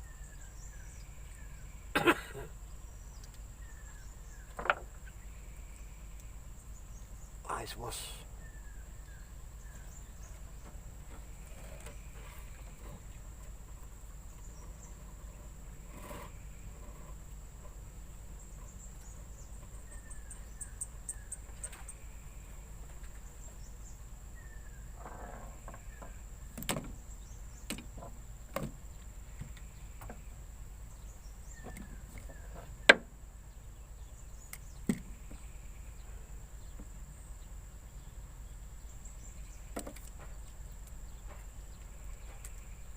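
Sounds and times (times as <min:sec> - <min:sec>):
faint chirps: 0:00.0 - 0:10.7.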